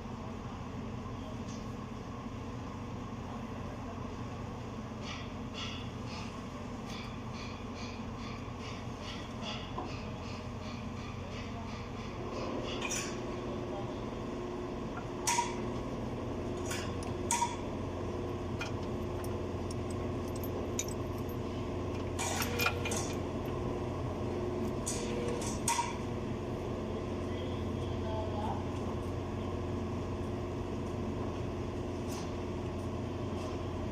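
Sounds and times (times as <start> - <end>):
steady machine hum: 0.0 - 33.9
hand tools clinking on metal: 18.6 - 23.2.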